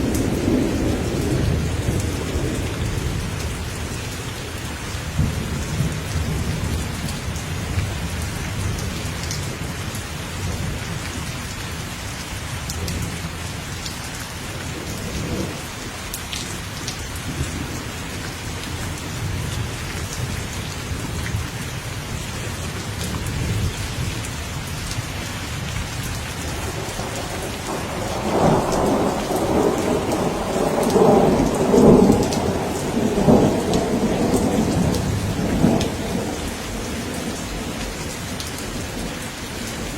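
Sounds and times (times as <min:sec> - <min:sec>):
rumbling thunder: 0:00.0 - 0:04.1, 0:05.1 - 0:09.8, 0:26.0 - 0:39.8
heavy rain: 0:00.0 - 0:39.9.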